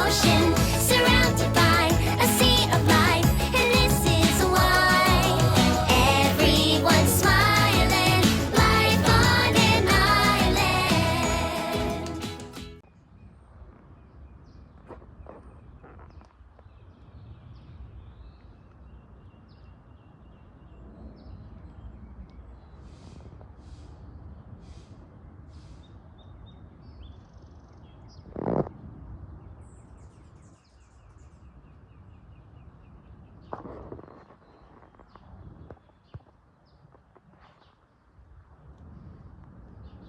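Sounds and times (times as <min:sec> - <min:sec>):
steady low rumble: 0:00.0 - 0:12.2.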